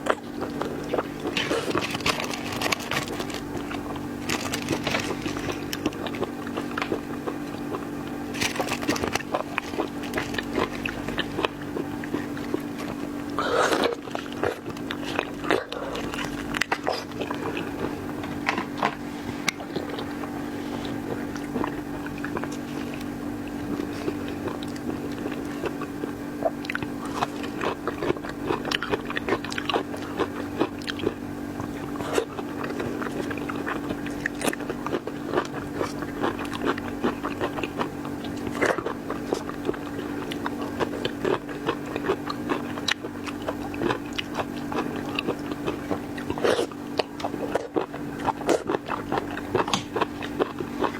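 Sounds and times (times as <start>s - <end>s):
sharp crunches: 0.0s - 25.8s
chewing and biting seafood: 0.0s - 50.9s
steady low hum: 0.0s - 50.9s.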